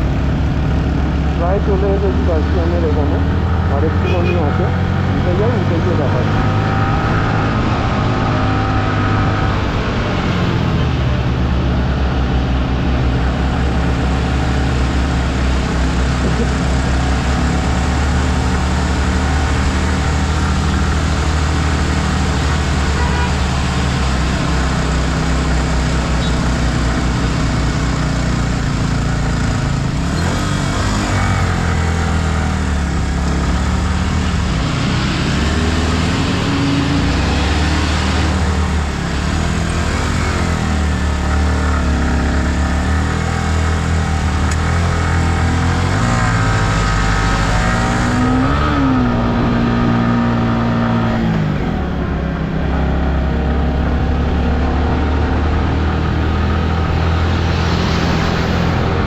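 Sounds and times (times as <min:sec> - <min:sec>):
motorcycle engine running: 0:00.0 - 0:35.4
constant rush of noise: 0:00.0 - 0:59.0.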